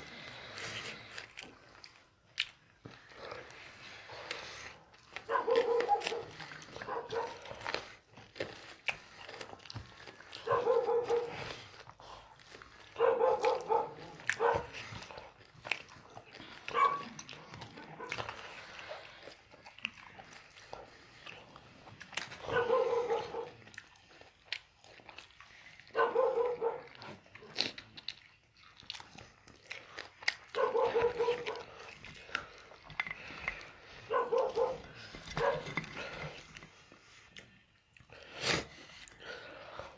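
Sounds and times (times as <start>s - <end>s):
dog chewing and crunching: 0.0s - 39.9s
short dog vocal sound: 10.4s - 11.5s, 13.0s - 15.2s, 22.3s - 23.7s, 30.5s - 31.9s, 34.0s - 36.4s.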